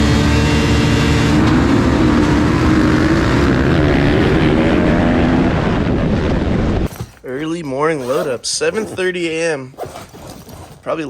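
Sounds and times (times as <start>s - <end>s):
dirt bike engine running: 0.0s - 5.4s.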